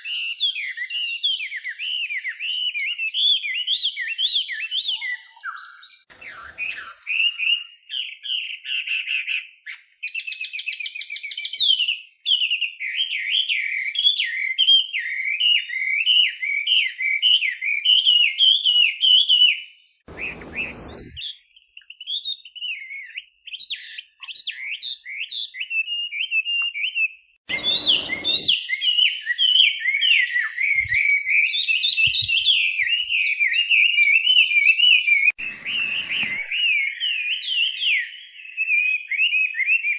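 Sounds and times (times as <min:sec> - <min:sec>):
bursts of noise: 0:20.1 - 0:21.2, 0:27.5 - 0:28.6
laughingthrush warbling song: 0:20.1 - 0:21.2.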